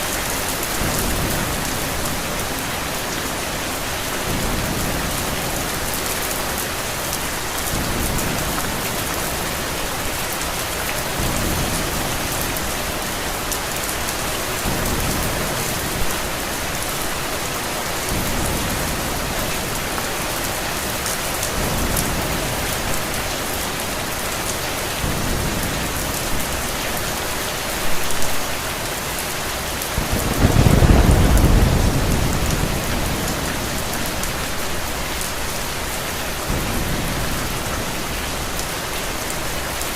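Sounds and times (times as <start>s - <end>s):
steady rain falling: 0.0s - 39.9s
low thunder rumbling: 0.1s - 10.1s, 29.9s - 38.9s.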